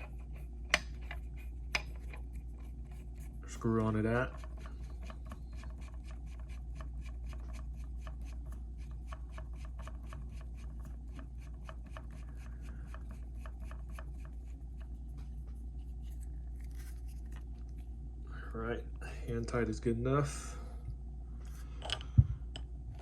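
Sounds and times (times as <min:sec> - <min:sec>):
small clicks and rubbing of threads: 0:00.0 - 0:17.9.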